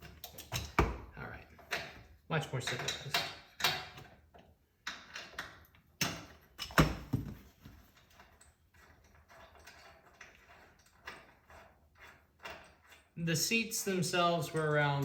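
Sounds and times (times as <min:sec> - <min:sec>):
knocks and clunks: 0:06.0 - 0:07.8.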